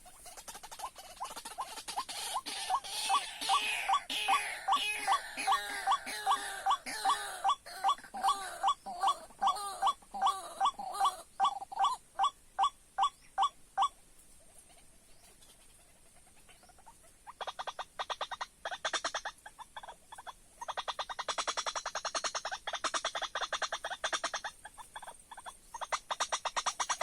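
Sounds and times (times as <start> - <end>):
bird calling harsh notes: 0.1 - 13.9.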